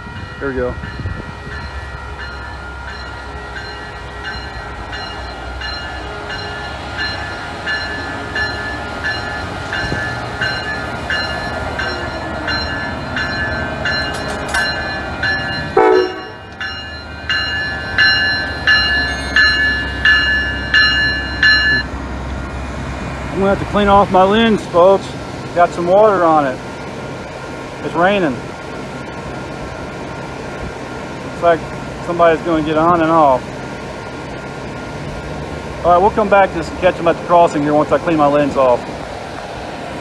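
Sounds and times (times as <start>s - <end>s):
locomotive bell ringing: 0.0s - 22.0s
diesel locomotive engine rumbling: 0.0s - 40.0s.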